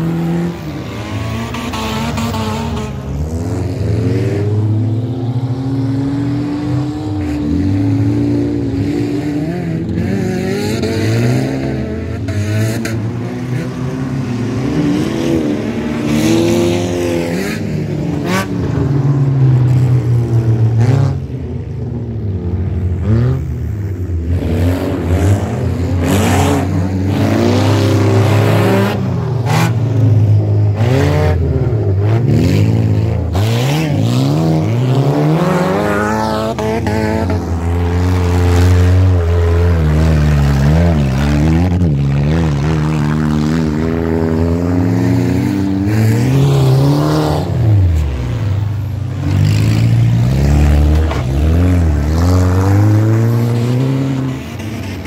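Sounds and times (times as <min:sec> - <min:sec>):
race car engines revving: 0:00.0 - 0:55.0.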